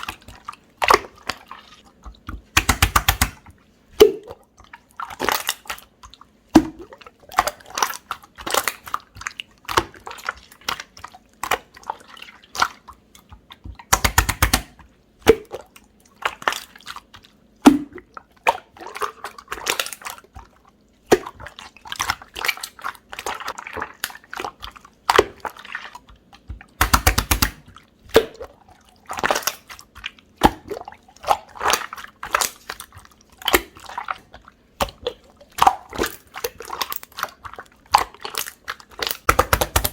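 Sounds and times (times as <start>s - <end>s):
slime squished by hand: 0.0s - 4.4s, 13.6s - 34.2s, 34.8s - 39.9s.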